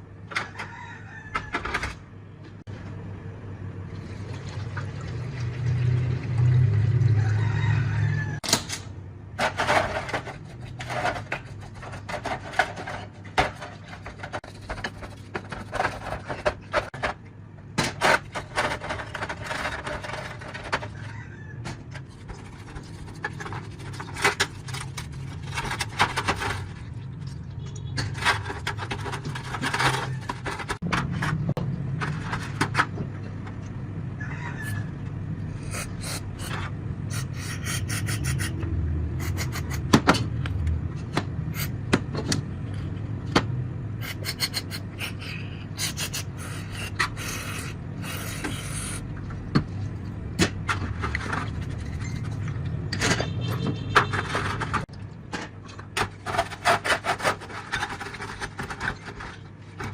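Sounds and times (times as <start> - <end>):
scraping and rubbing strokes: 35.6 - 38.6.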